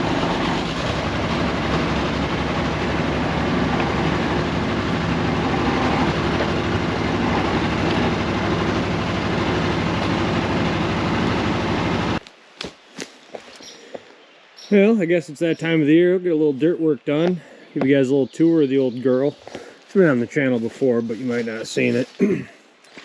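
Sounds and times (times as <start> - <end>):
diesel engine running: 0.0 - 12.2.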